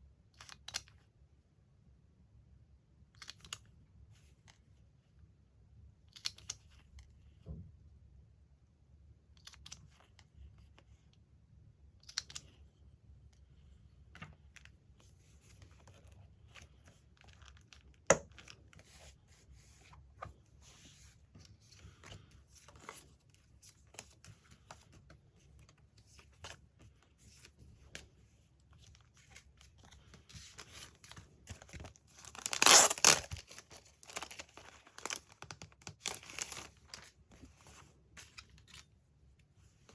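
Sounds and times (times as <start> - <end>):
magazine paper rustling: 28.8 - 38.9
paper tearing: 32.2 - 34.4.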